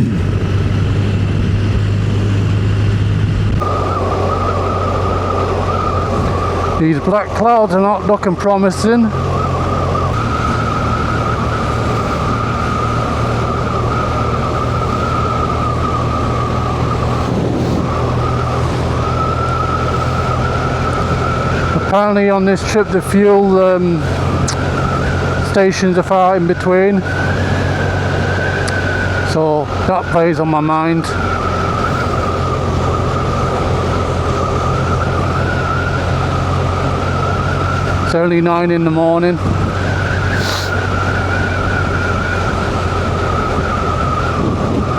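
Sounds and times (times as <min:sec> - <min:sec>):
high whine: 0:00.0 - 0:44.9
motorcycle engine cruising: 0:00.0 - 0:44.9
road and wind noise: 0:00.0 - 0:44.9.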